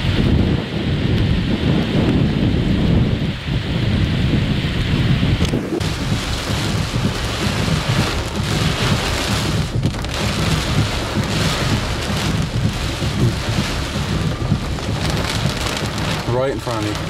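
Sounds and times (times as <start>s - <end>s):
heavy rain pouring: 0.0s - 17.0s
wind buffeting microphone: 0.0s - 17.0s
low uneven rumble: 4.2s - 17.0s.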